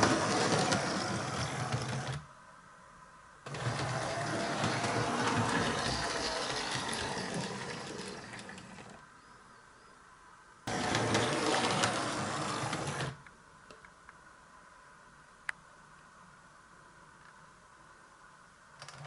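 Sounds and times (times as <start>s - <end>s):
model train motor whirring: 0.0s - 2.2s, 3.5s - 9.0s, 10.7s - 13.2s.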